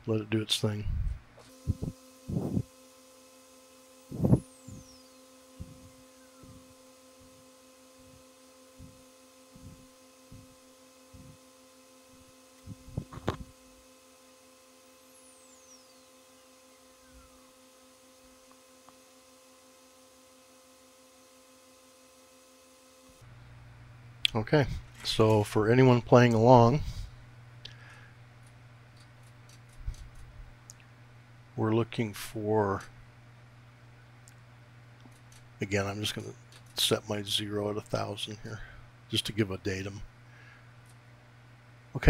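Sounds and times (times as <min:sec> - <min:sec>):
electrical hum: 0:00.0 - 0:42.0
dull low thumps: 0:04.1 - 0:04.4, 0:12.7 - 0:13.5.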